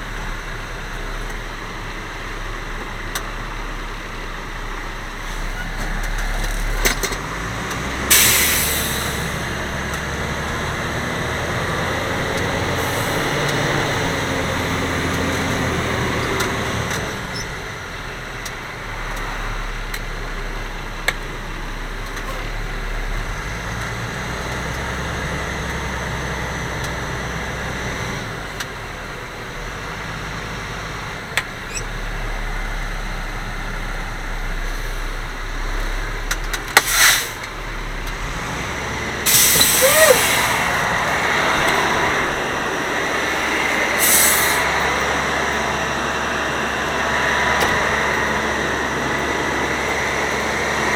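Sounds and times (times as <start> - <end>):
diesel engine running: 0.0 - 50.9
loud air hisses: 36.9 - 37.4, 39.2 - 40.8, 43.9 - 44.8.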